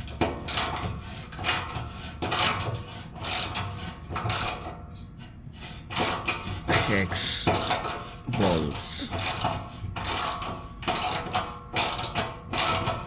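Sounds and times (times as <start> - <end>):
hand ratchet clicking: 0.5 - 0.9, 2.3 - 4.6, 6.0 - 6.2, 6.8 - 12.9.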